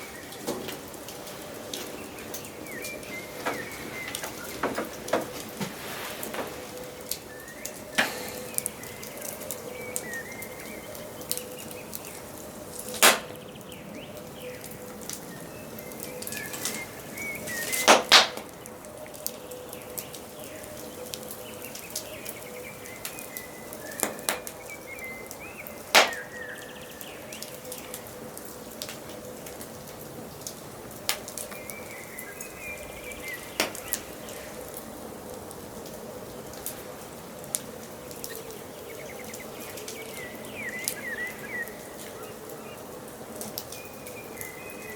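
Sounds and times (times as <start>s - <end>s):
fire popping: 0.0s - 22.4s, 23.0s - 26.4s
songbirds chirping: 0.0s - 44.9s
wood fire crackling: 0.0s - 44.9s.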